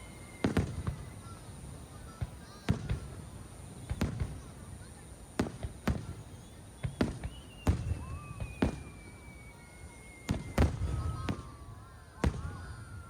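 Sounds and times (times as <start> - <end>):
long thin falling whistle: 0.0 - 1.4, 6.5 - 13.0
fireworks bursting with echoing bangs: 0.0 - 13.0.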